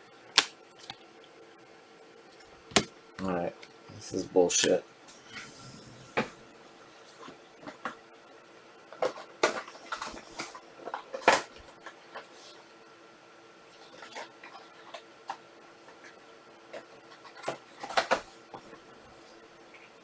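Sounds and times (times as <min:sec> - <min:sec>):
cards clicking and rustling: 0:00.4 - 0:01.0, 0:02.7 - 0:03.8, 0:04.6 - 0:04.8.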